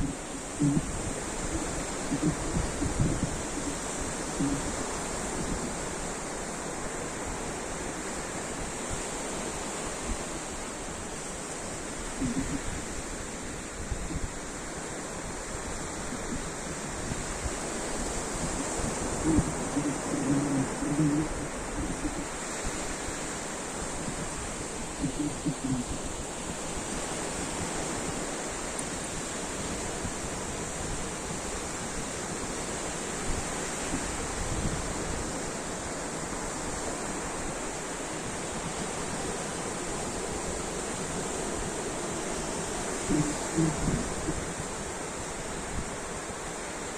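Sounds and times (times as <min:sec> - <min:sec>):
ocean surf washing in: 0:00.0 - 0:46.9
waves breaking: 0:00.0 - 0:46.9.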